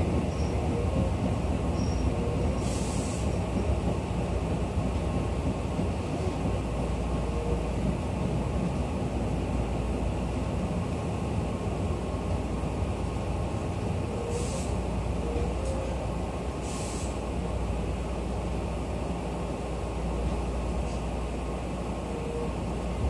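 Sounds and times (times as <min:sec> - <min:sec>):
electric train rumbling: 0:00.0 - 0:23.0
compressed air hisses: 0:02.6 - 0:03.4, 0:16.6 - 0:17.3.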